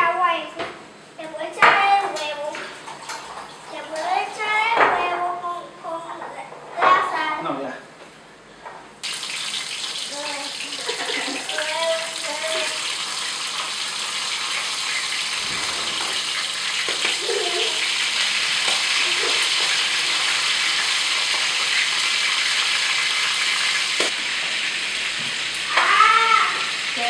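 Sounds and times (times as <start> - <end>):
food frying in hot oil: 9.0 - 27.0.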